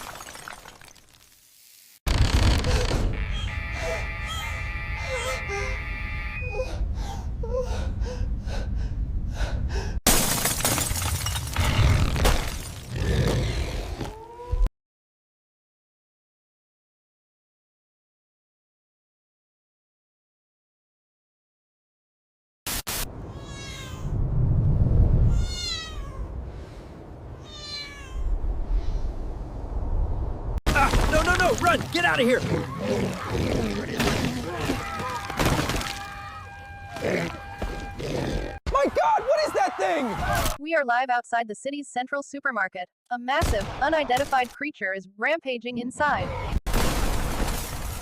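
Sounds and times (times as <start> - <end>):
cat meowing: 23.3 - 24.1, 25.3 - 26.3, 27.4 - 28.3
low rumble: 24.1 - 25.7.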